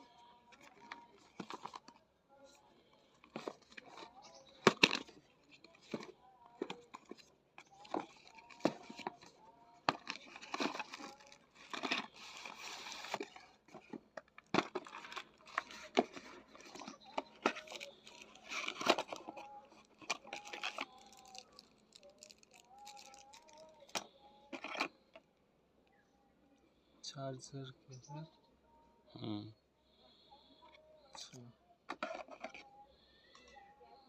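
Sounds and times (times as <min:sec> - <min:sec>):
plastic and cardboard crinkling: 0:00.0 - 0:24.9, 0:31.9 - 0:32.8
packaging tearing: 0:20.2 - 0:23.7.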